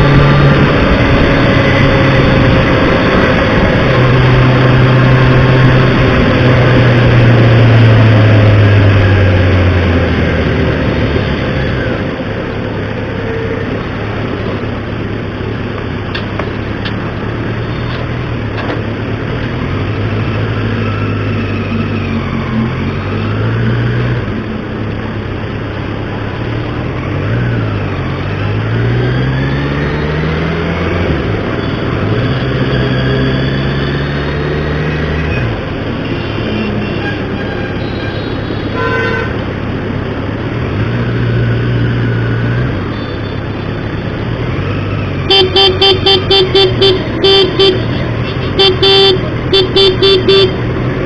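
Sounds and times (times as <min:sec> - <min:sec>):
vehicle engine running: 0:45.3 - 0:50.9.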